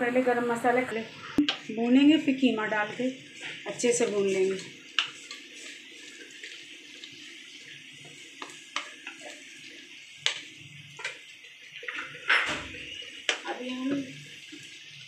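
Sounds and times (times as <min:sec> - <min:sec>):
paste sizzling in a pan: 0:00.4 - 0:15.0
wooden spatula scraping a pan: 0:02.4 - 0:11.2.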